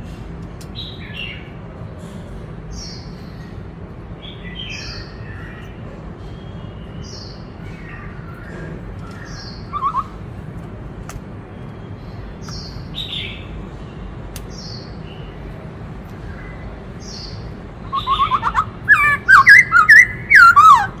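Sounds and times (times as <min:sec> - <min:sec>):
bird singing high falling notes: 0:09.3 - 0:10.2, 0:17.8 - 0:21.0
bird warbled phrase: 0:09.7 - 0:10.2, 0:17.8 - 0:21.0.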